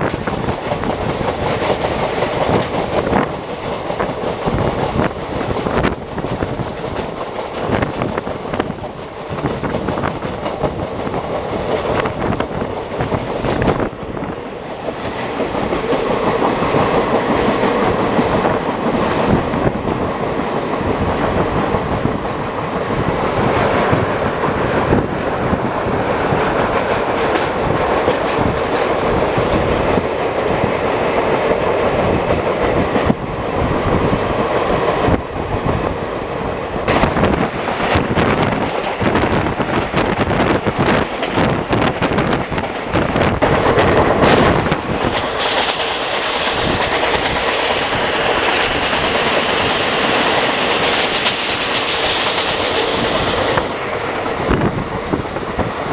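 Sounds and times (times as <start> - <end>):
train coach rumbling: 0.0 - 55.9
wheels clattering over rail joints: 36.9 - 53.9.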